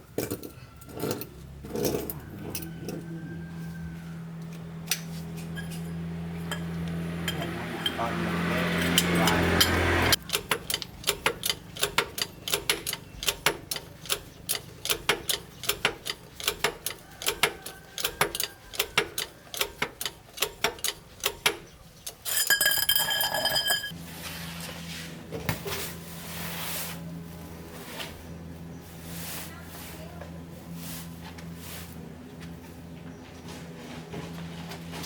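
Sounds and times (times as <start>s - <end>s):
sharp mechanical clicks: 10.2s - 22.3s.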